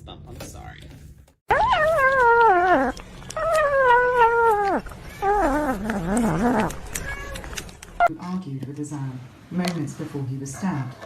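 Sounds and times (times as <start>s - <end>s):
cat yowling: 1.5s - 7.4s.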